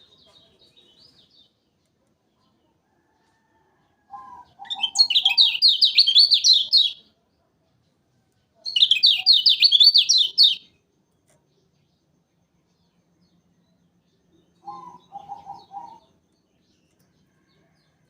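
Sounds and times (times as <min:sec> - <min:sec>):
bird chattering song: 0:04.1 - 0:07.1, 0:08.6 - 0:10.9, 0:12.8 - 0:18.0.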